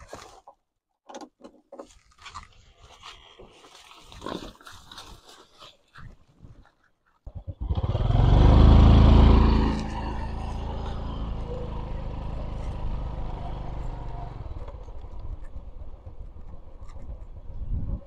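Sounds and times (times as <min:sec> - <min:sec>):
small motorcycle engine revving: 0:07.3 - 0:17.5.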